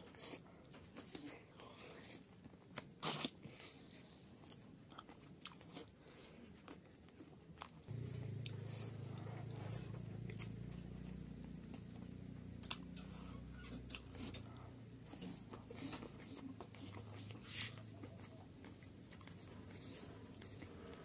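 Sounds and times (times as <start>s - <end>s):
person biting and chewing food: 2.7s - 6.0s, 12.6s - 14.5s
low hum: 7.9s - 15.2s.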